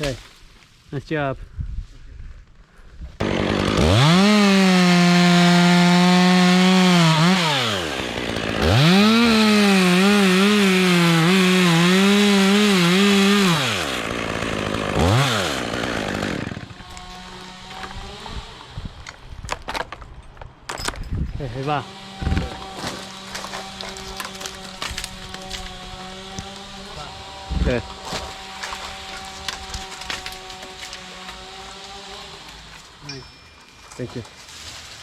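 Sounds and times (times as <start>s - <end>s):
chainsaw revving cutting wood: 3.2s - 18.8s, 21.7s - 33.0s.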